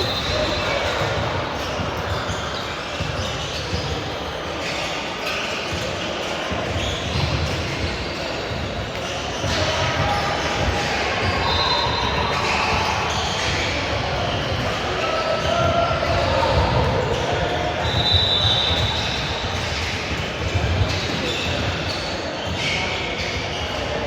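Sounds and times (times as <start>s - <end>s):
basketball bouncing on gym floor: 0.0s - 4.0s
indistinct echoing voices: 0.0s - 5.2s.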